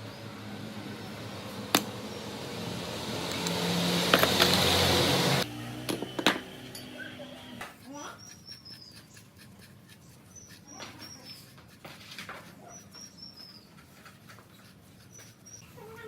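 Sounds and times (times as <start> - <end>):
animal chirping: 7.0 - 11.7, 12.4 - 14.0, 14.6 - 16.0.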